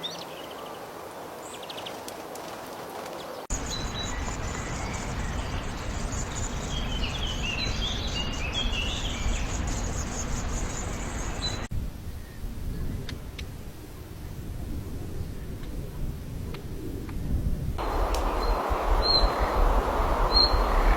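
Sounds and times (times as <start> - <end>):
small birds chirping: 3.5 - 11.7, 17.8 - 20.9
low rumble of outdoor noise: 3.5 - 16.7, 17.5 - 20.9.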